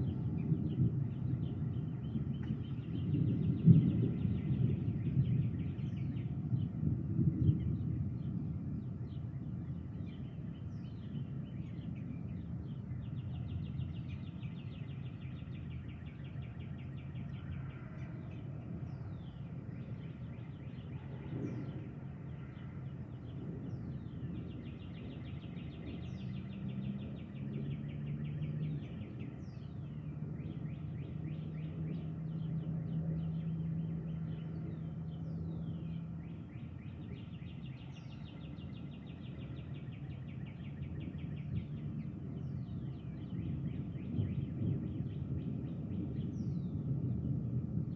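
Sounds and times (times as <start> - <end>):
birds chirping and trilling: 9.0 - 47.2
low rumbling background: 23.6 - 47.9.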